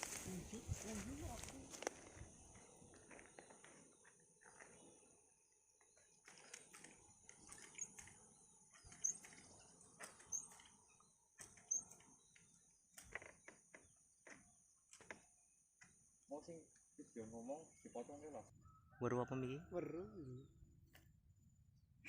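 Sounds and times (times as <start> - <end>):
light clicks and rustles: 5.8 - 16.0.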